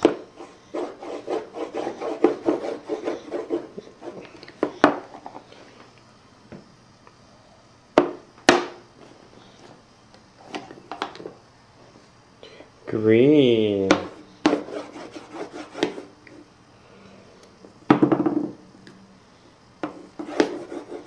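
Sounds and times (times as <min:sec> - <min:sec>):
crayon scribbling on paper: 0:00.4 - 0:04.2, 0:14.1 - 0:16.1, 0:19.9 - 0:21.0.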